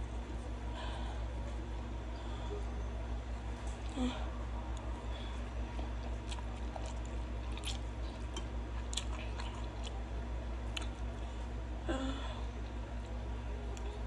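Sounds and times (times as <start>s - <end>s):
steady low hum: 0.0s - 14.0s
person chewing noodles: 4.7s - 11.2s.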